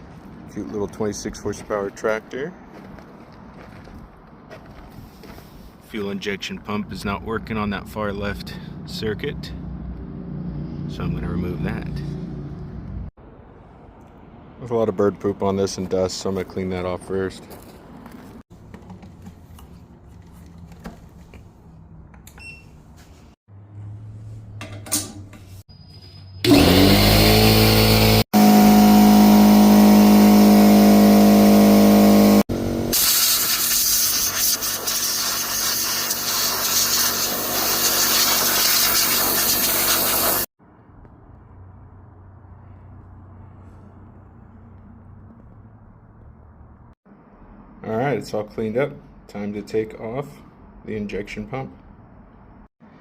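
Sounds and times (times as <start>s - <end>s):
electric motor whine: 26.5s - 32.9s
cleaning jet hissing: 29.3s - 40.5s.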